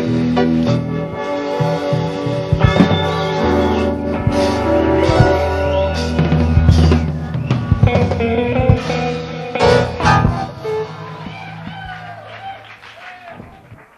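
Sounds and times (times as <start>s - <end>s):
jazz-rock band playing: 0.0s - 12.6s
electric guitar: 0.0s - 12.8s
sustained bass notes: 2.4s - 11.7s.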